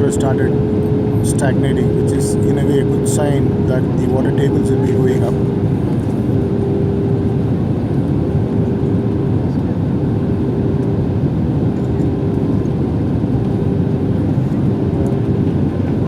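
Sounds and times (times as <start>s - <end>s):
constant low hum: 0.0s - 16.0s
engines and rushing air roar: 0.0s - 16.0s.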